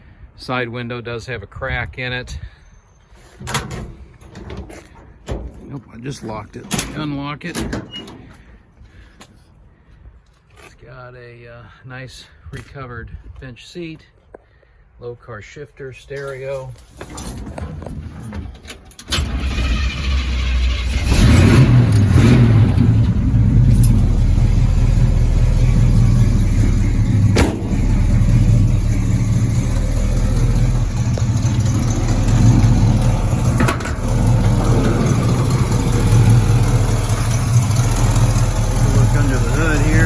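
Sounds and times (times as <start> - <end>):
car engine starting and running: 17.2 - 40.0.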